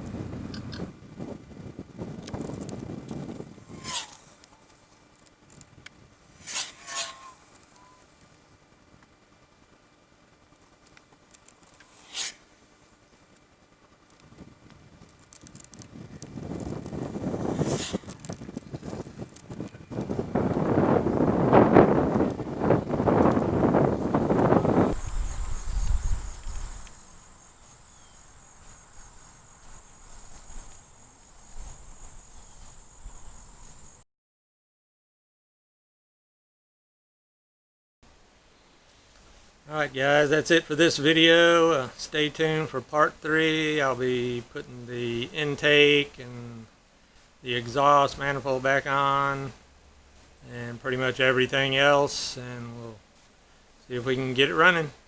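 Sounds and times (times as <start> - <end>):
short swish: 3.7 - 4.4, 6.4 - 8.0, 11.8 - 12.5, 17.2 - 18.2
cricket chirping: 22.7 - 34.0.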